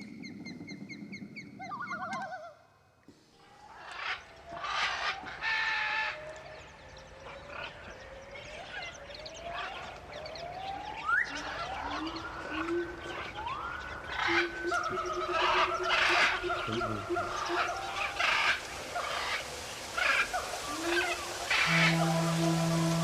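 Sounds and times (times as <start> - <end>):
loons wailing: 20.7 - 23.0.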